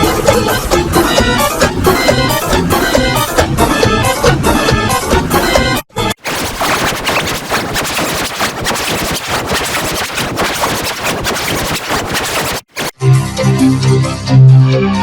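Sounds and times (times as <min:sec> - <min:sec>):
harsh distorted crackling noise: 0:06.2 - 0:13.0.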